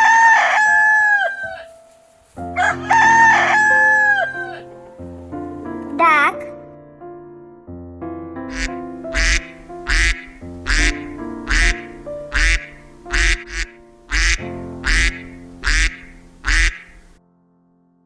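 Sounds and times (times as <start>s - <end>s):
light background music: 0.0s - 7.3s, 8.4s - 17.2s
duck quacking: 8.5s - 17.2s.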